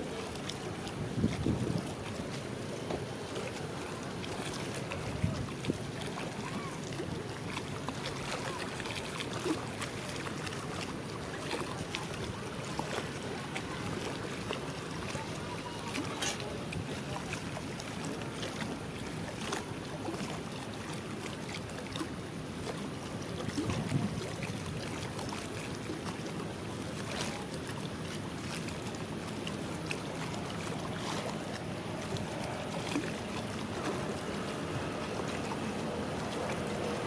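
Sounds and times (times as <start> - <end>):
wind on microphone: 0.9 - 2.0, 5.0 - 5.8, 23.5 - 24.3.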